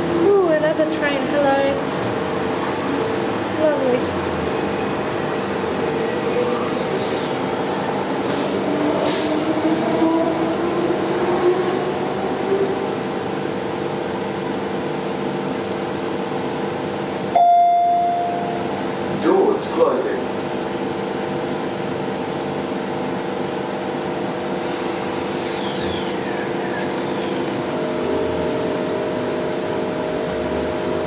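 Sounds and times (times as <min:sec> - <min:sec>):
train running noise: 0:00.0 - 0:31.0
loud steady tone: 0:17.3 - 0:18.8
traction motor whine: 0:24.6 - 0:29.1.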